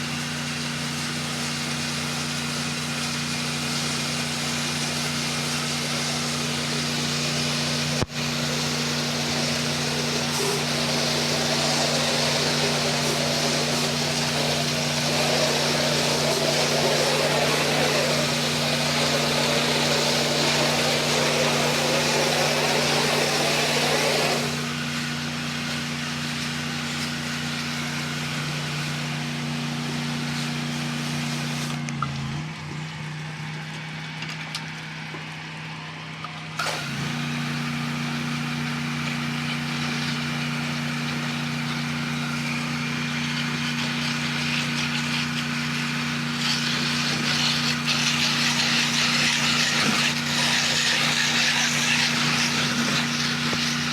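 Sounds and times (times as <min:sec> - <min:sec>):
water spray hissing: 0:00.0 - 0:31.8, 0:36.6 - 0:53.9
pressure washer engine running: 0:00.0 - 0:53.9.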